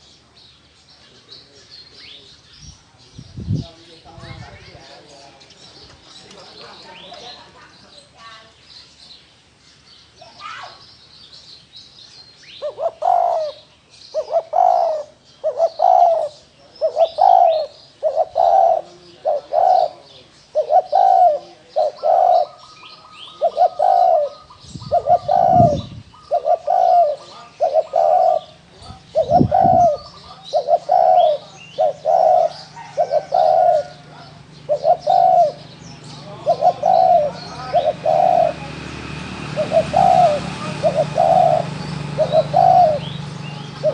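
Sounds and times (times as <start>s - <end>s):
faint chirps of small birds: 0.0s - 43.9s
dove cooing: 12.6s - 43.9s.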